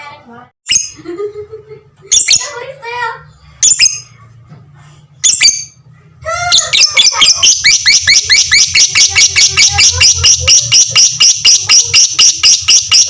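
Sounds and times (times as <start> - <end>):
lovebird chattering: 2.1 - 2.6, 3.6 - 4.1, 5.2 - 5.8, 6.5 - 13.0
lovebird squawk: 6.4 - 13.0.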